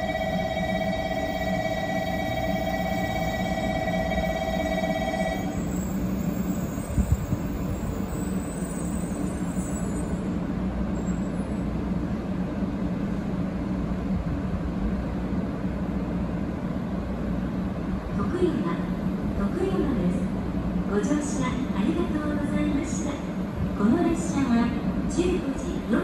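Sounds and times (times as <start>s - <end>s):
steady electronic tone: 0.0s - 5.8s
train running gear rumbling: 0.0s - 18.2s.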